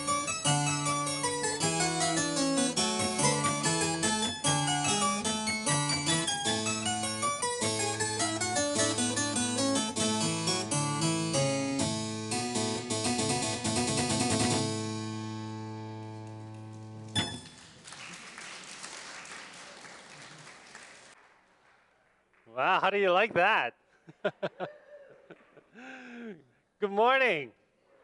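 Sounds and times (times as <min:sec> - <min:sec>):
harpsichord playing: 0:00.0 - 0:17.5
soft applause: 0:16.2 - 0:23.0.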